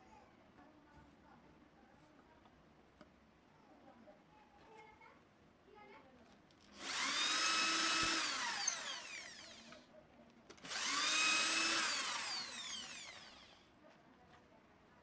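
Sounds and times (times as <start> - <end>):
power tool motor whine: 6.8 - 9.8, 10.6 - 13.6.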